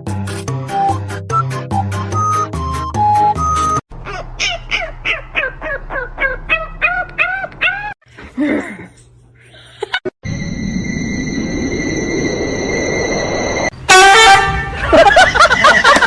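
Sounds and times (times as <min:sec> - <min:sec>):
rushing noise: 0:10.3 - 0:13.8.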